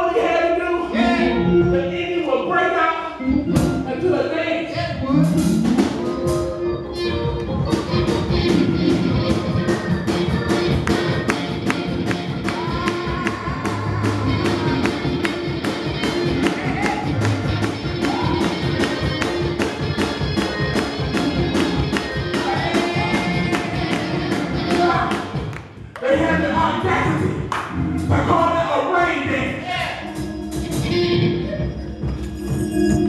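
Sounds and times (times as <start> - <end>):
up-tempo gospel music: 0.0 - 33.0
drums and tambourine percussion: 7.6 - 25.5, 30.0 - 33.0.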